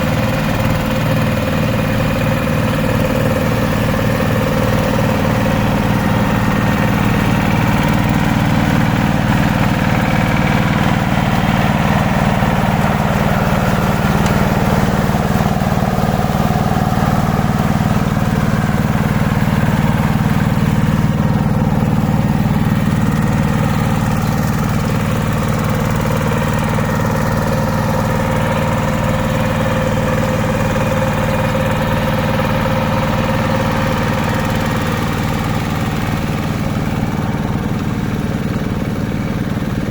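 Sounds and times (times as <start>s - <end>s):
hand tractor engine chugging: 0.0s - 39.9s.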